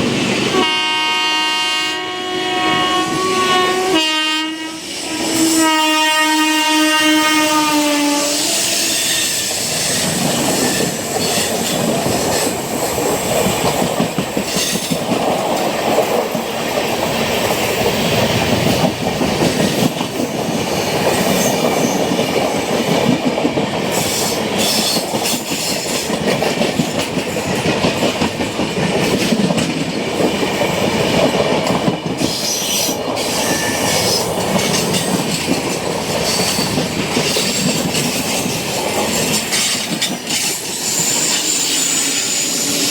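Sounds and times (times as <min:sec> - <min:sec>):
locomotive horn: 0:00.5 - 0:09.3
train wheels clattering over rail joints: 0:08.8 - 0:42.9.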